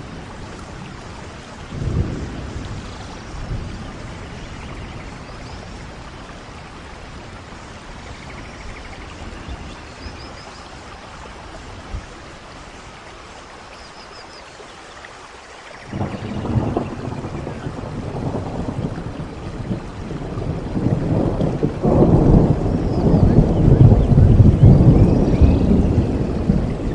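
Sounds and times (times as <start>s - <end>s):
thunder rumbling: 0.0s - 10.4s, 15.9s - 26.9s
steady rain falling: 0.0s - 26.9s.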